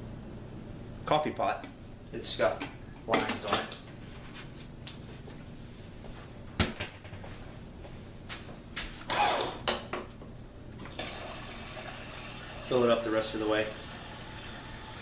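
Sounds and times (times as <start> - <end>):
kitchen clatter: 3.1 - 3.8
tap running water: 10.8 - 15.0.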